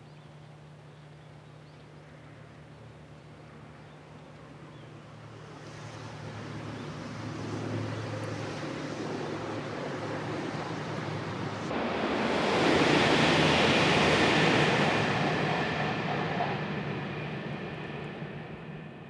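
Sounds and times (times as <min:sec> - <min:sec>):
high-speed train rushing past: 0:05.1 - 0:19.0.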